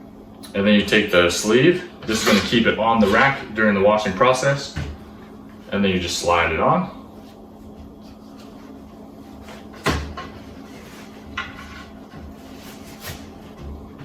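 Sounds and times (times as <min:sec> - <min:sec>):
plastic sleeve rubbing: 0:12.4 - 0:13.5.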